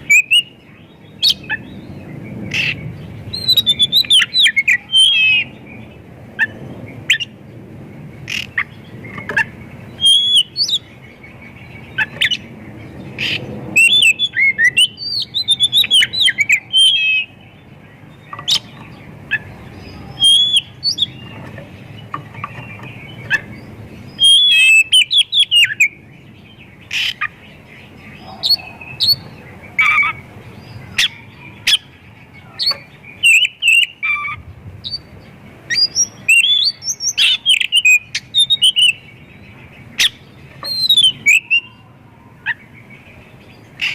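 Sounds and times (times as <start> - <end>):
songbird singing: 0.0 - 43.9.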